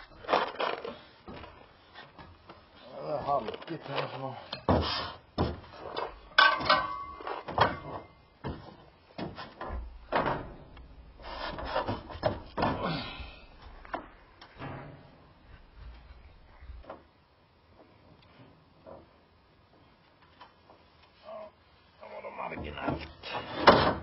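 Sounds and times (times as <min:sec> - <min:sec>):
chimney parts knocking and scraping: 0:04.6 - 0:10.7.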